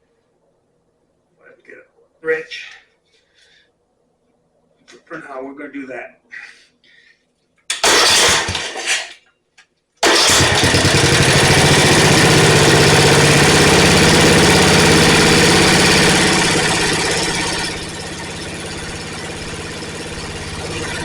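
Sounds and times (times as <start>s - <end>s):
mower engine cranking and running: 7.7s - 9.0s, 10.0s - 21.0s.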